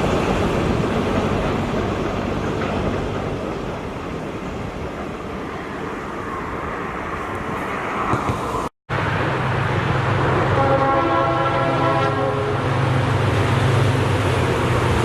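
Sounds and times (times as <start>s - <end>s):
diesel locomotive engine drone: 0.0s - 15.0s
rushing rail traffic: 0.0s - 15.0s
locomotive horn: 10.4s - 13.0s.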